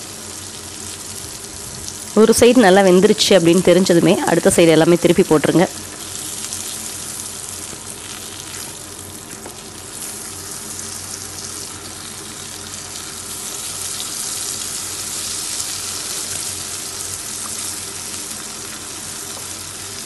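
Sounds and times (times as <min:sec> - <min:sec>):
slices sizzling in hot oil: 0:00.0 - 0:20.0.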